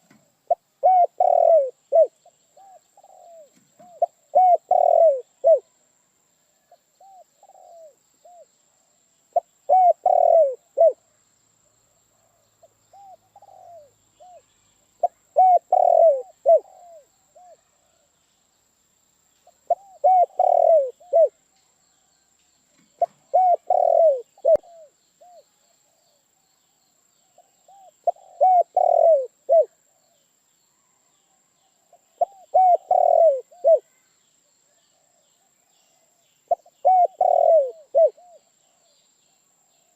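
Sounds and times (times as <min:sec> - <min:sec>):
dove cooing: 0:00.0 - 0:05.7, 0:07.0 - 0:08.5, 0:09.4 - 0:11.0, 0:12.9 - 0:14.4, 0:15.0 - 0:18.0, 0:19.6 - 0:21.4, 0:23.0 - 0:25.4, 0:27.4 - 0:30.1, 0:32.0 - 0:33.9, 0:36.5 - 0:38.9.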